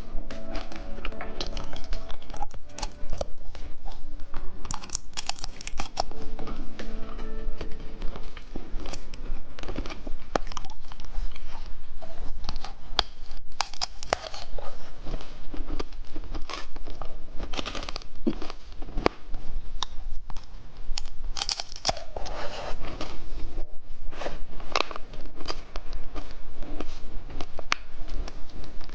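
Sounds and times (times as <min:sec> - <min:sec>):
plastic packaging crinkling and tearing: 0:00.0 - 0:06.6, 0:07.2 - 0:23.5.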